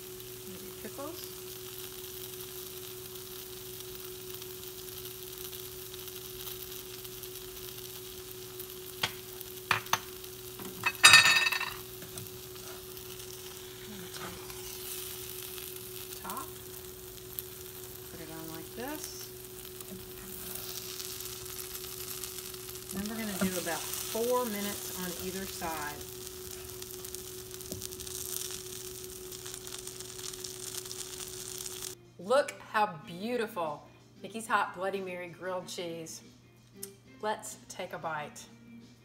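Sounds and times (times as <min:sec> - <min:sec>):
bread sizzling in a frying pan: 0:00.0 - 0:32.0
metal spatula clattering on pan: 0:10.8 - 0:11.8.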